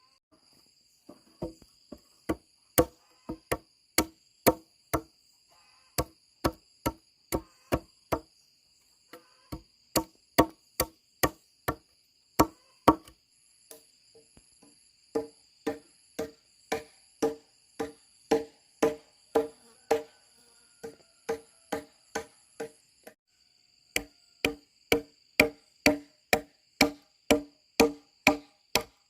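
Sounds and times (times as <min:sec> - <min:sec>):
insects buzzing: 0:00.0 - 0:29.0
hand tool striking blows: 0:24.0 - 0:29.0.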